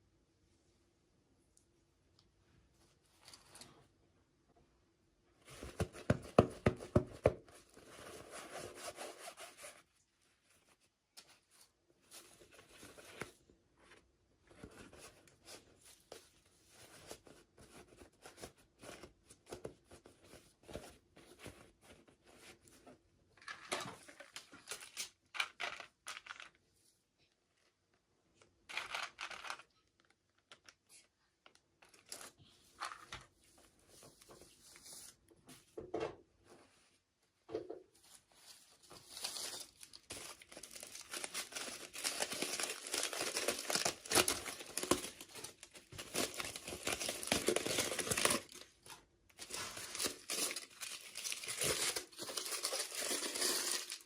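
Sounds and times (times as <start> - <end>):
packaging rustling and tearing: 38.9 - 54.0.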